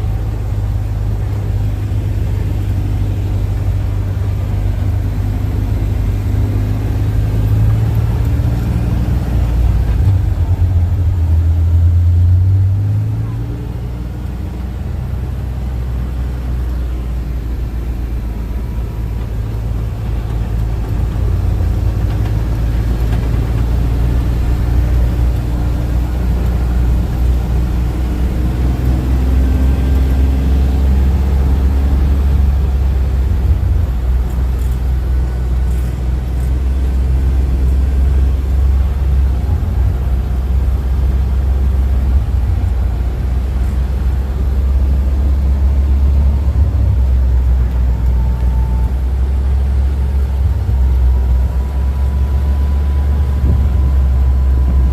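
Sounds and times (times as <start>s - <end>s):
vehicle engine droning: 0.0s - 54.9s.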